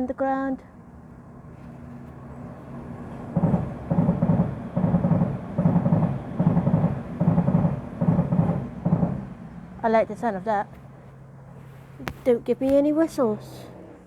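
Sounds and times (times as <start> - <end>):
train wheels pulsing: 0.0 - 14.0
underground train rumbling: 0.0 - 14.0.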